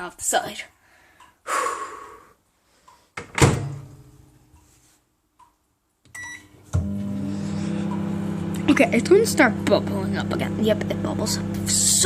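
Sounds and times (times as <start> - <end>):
keypad beep: 6.1 - 6.5.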